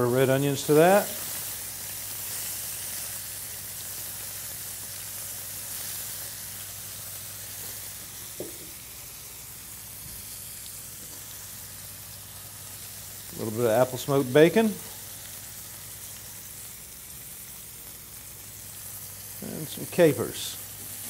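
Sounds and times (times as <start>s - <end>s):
fish frying in hot oil: 0.0s - 21.0s
small knock: 8.4s - 8.8s.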